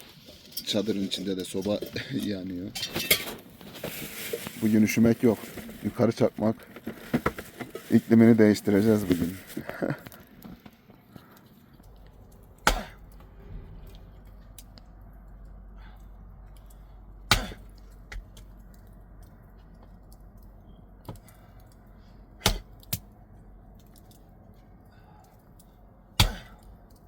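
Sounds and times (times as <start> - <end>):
axe chopping wood: 12.6 - 13.0, 17.3 - 18.4, 22.4 - 23.0, 26.2 - 26.6.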